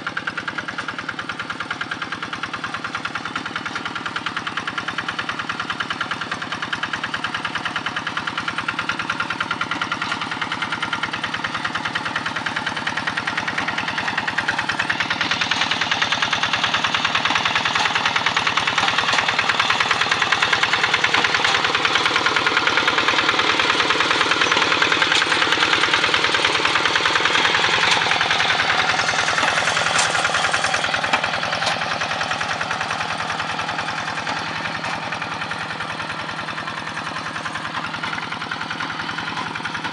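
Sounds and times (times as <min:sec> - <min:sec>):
diesel hand tractor engine running: 0:00.0 - 0:39.9.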